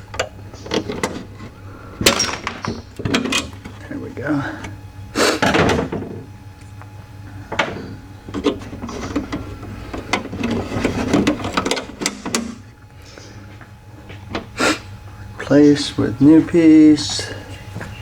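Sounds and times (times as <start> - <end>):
metal parts clicking and rattling: 0.0 - 4.0, 7.5 - 12.6.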